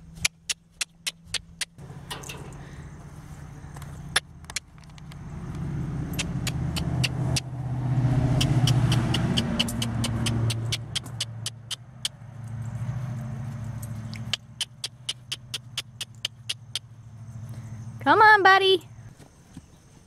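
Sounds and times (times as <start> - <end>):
vehicle engine droning: 0.0 - 18.2
sharp clicks and ticks: 0.2 - 2.6, 3.7 - 7.5, 8.4 - 12.9, 13.7 - 16.9.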